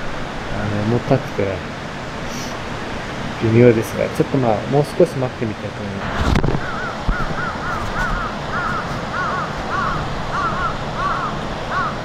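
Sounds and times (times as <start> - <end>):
background hiss: 0.0 - 11.9
birds calling: 6.4 - 12.0.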